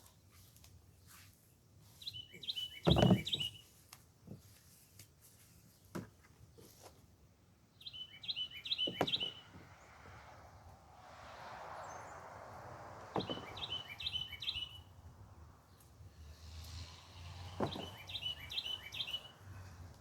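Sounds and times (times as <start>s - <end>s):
knocks and rustles in potting soil: 0.0s - 7.3s, 16.4s - 20.0s
songbird chirping: 1.8s - 5.0s, 7.7s - 20.0s.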